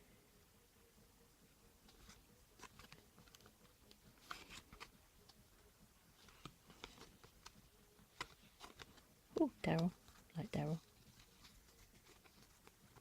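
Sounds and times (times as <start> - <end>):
card pack crinkling: 4.2 - 4.9.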